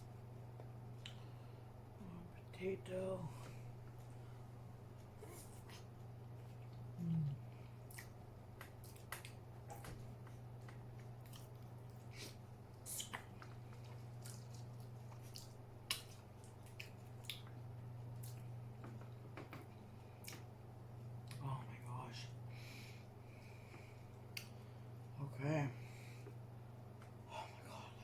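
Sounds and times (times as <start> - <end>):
steady low hum: 0.0 - 28.0
person chewing soft food: 0.5 - 1.6, 3.8 - 21.4, 23.2 - 25.1
wet mouth clicks and smacks: 7.9 - 13.6, 14.2 - 17.6.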